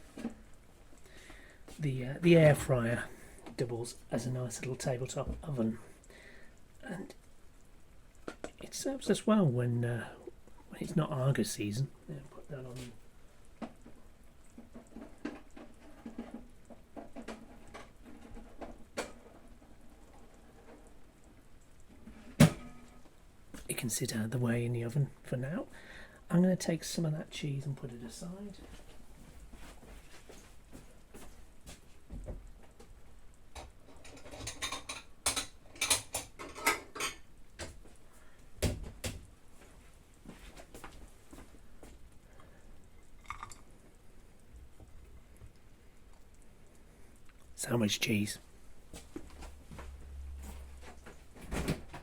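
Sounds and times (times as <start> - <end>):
kitchen utensils tapping and rustling: 33.6 - 37.8.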